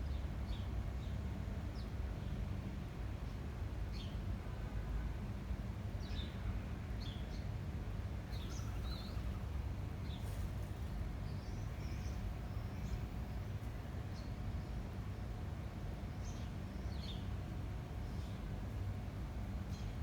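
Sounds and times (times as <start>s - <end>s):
small birds chirping: 8.3s - 10.4s.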